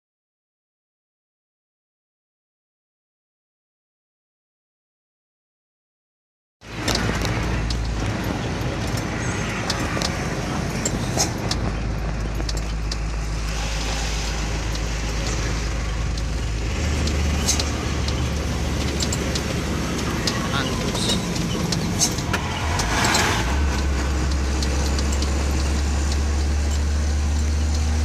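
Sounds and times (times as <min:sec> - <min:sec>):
road noise: 0:06.6 - 0:28.0
truck engine drone: 0:06.6 - 0:28.0.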